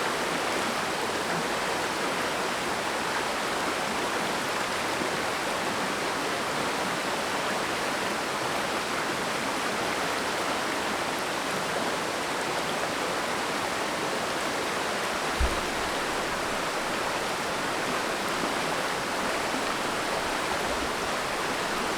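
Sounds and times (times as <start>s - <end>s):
stream rushing water: 0.0s - 21.9s
brief low thump: 15.2s - 18.3s.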